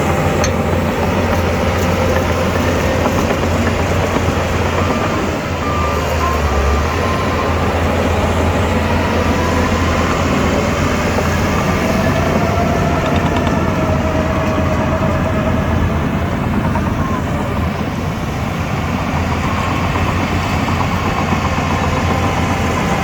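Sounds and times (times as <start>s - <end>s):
steel tracks clattering: 0.0s - 7.0s
diesel engine running: 0.0s - 23.0s.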